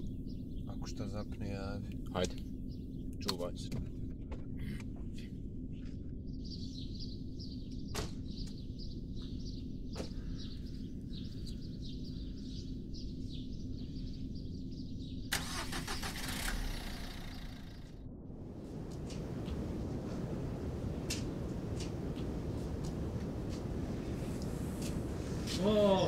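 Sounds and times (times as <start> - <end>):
car engine running: 15.4 - 18.0.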